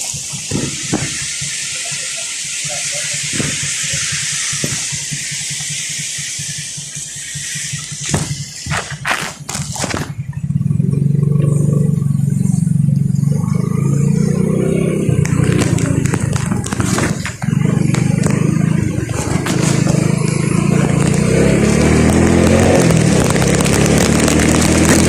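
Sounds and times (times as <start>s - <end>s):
steady hiss: 0.0s - 25.0s
vehicle engine pulsing low hum: 0.0s - 25.0s
sharp knocks: 8.0s - 10.4s.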